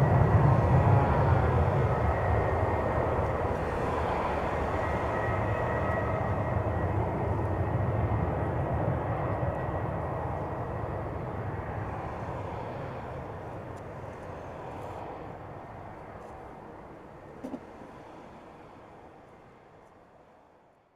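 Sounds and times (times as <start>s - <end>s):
jet engines roaring on takeoff: 0.0s - 19.7s.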